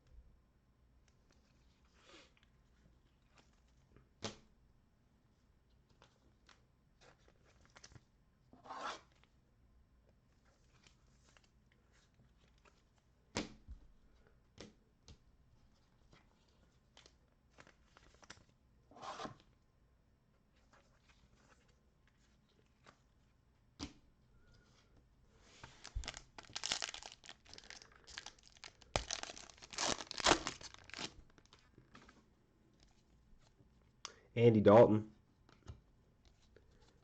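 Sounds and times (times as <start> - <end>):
plastic wrapper tearing and crinkling: 25.8 - 31.7.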